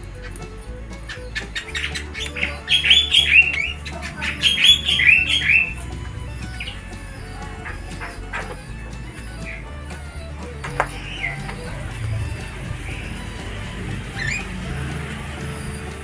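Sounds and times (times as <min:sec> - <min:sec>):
sharp clicks and chatter: 0:00.0 - 0:16.0
starling falling whistled notes: 0:00.0 - 0:16.0.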